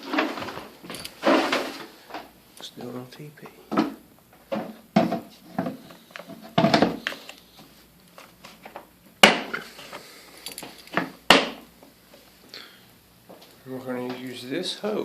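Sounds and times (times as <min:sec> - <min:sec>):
clatter of hard objects: 0:00.0 - 0:02.3.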